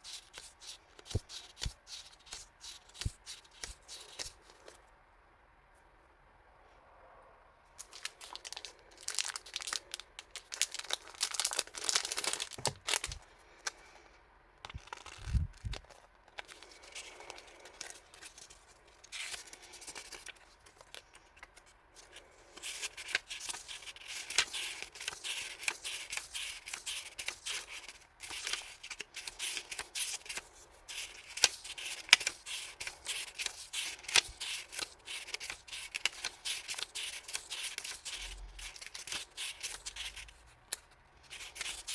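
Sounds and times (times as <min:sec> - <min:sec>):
plastic and paper crinkling: 0:07.8 - 0:13.8, 0:14.6 - 0:41.9.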